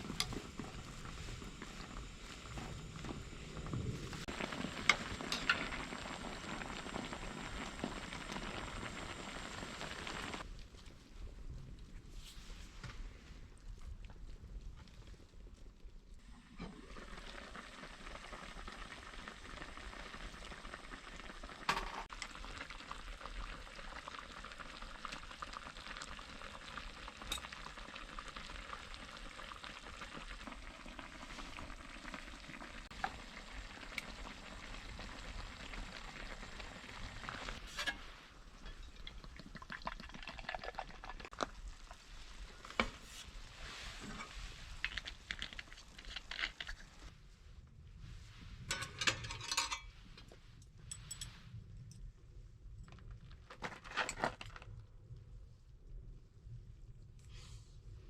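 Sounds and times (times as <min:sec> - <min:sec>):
food sizzling in a pan: 0:00.0 - 0:10.4.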